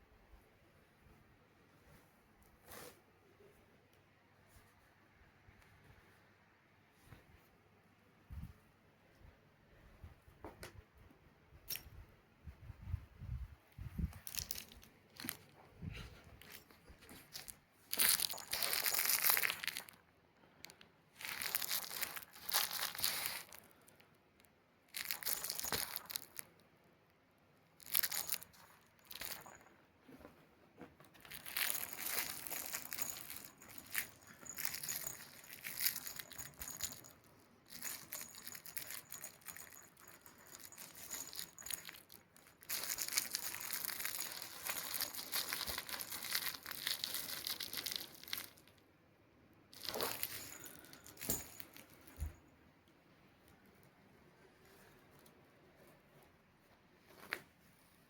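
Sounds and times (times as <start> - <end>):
crinkling rustling: 13.7 - 26.7, 27.6 - 48.8, 49.7 - 52.5, 53.4 - 58.0.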